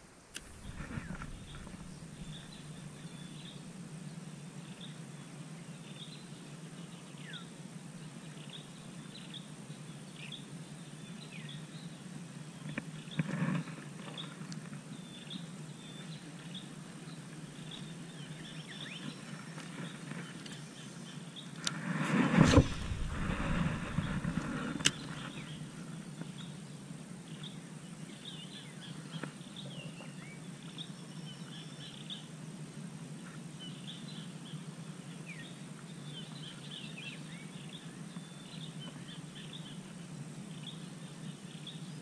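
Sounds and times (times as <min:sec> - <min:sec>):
steady low hum: 0:00.0 - 0:42.0
small birds chirping: 0:00.3 - 0:21.8, 0:22.4 - 0:32.4, 0:33.2 - 0:42.0
brief loud noises: 0:22.0 - 0:24.9.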